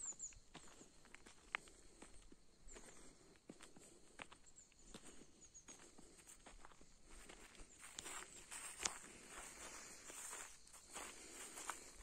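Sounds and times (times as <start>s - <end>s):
faint high chirps: 0.0s - 1.0s
faint footsteps: 0.5s - 12.0s.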